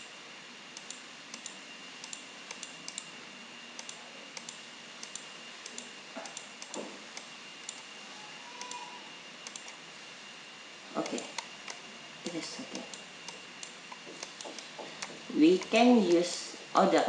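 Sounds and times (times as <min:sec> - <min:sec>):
computer mouse clicks: 0:00.8 - 0:03.1, 0:03.8 - 0:07.9, 0:09.4 - 0:09.8, 0:12.7 - 0:15.8.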